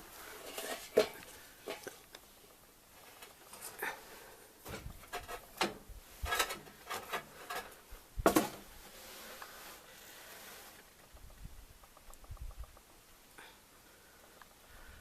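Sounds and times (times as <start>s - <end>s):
knocks clicks and scrapes of handling: 4.6s - 8.6s.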